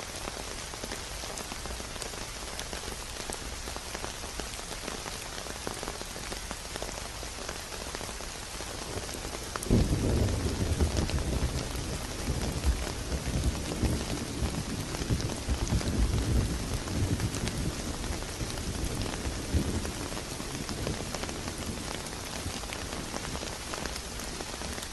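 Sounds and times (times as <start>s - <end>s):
rain pattering: 0.0s - 24.9s
thunder rumbling: 9.7s - 22.6s.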